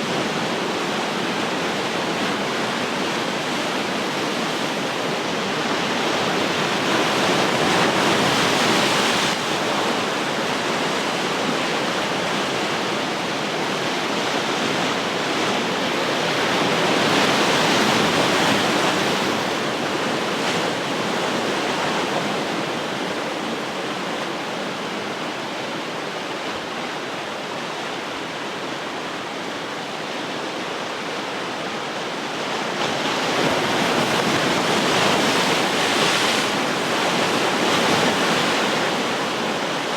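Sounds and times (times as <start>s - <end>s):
ocean surf breaking: 32.5s - 39.9s.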